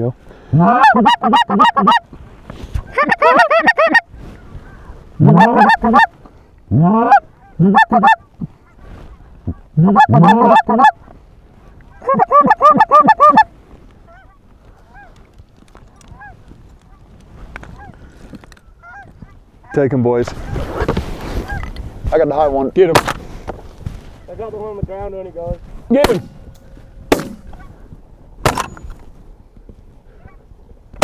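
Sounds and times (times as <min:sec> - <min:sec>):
distant geese calling: 0:00.4 - 0:02.2, 0:02.9 - 0:19.8, 0:21.4 - 0:21.8, 0:23.0 - 0:29.2, 0:30.0 - 0:31.0
handheld goose call honks: 0:00.5 - 0:02.1, 0:02.9 - 0:04.1, 0:05.2 - 0:08.3, 0:09.4 - 0:11.1, 0:11.9 - 0:13.5.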